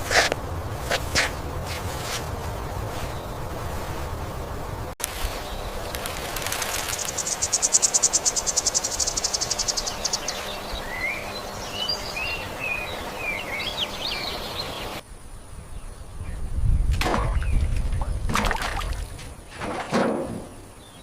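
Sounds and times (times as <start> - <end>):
insect high-pitched pulsing trill: 5.6 - 16.6.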